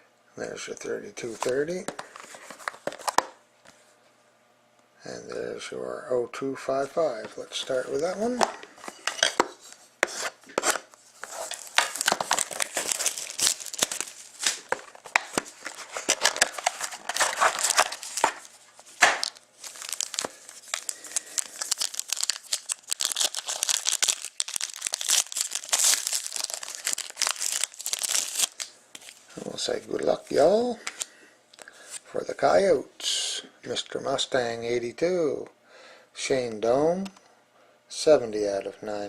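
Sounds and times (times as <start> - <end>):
wrapping crackling and tearing: 10.6 - 29.3.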